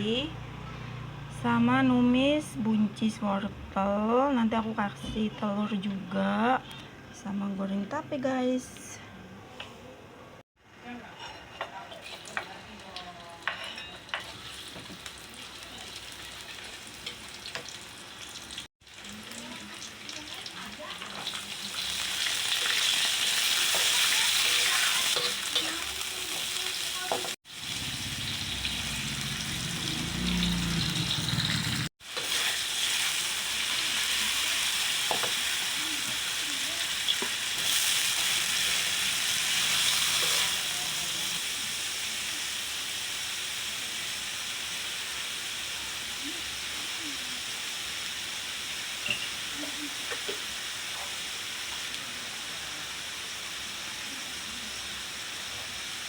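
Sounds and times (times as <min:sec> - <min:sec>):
food sizzling in hot oil: 0:11.7 - 0:56.0.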